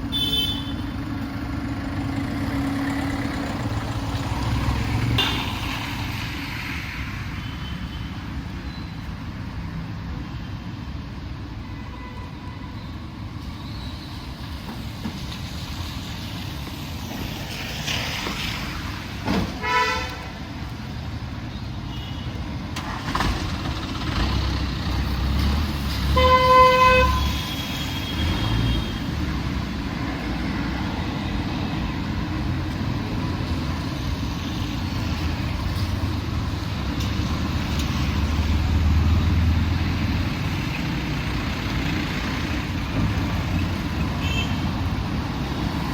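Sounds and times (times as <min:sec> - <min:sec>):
street traffic engines: 0:00.0 - 0:45.9
vehicle horns honking: 0:00.1 - 0:00.8, 0:19.6 - 0:20.3, 0:26.1 - 0:29.0, 0:44.2 - 0:44.6.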